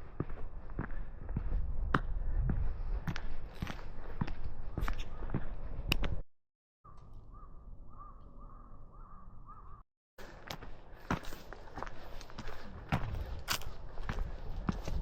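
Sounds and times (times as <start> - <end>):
crows cawing: 6.9 - 9.8.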